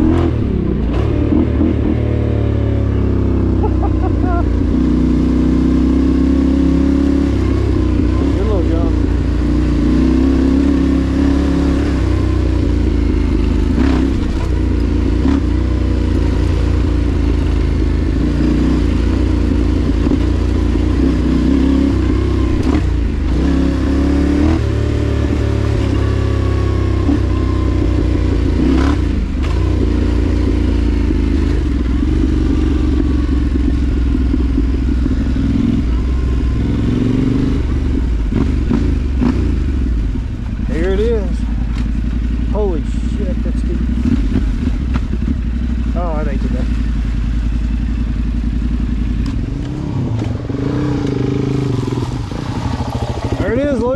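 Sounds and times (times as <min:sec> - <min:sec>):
motorcycle engine revving: 0:00.0 - 0:53.9
motorcycle knocks and clatter: 0:41.5 - 0:42.5, 0:43.8 - 0:45.9.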